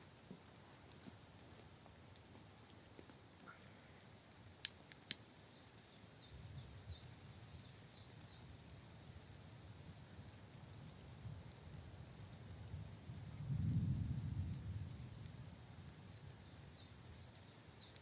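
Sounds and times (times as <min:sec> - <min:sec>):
sharp clicks: 0:04.6 - 0:05.2.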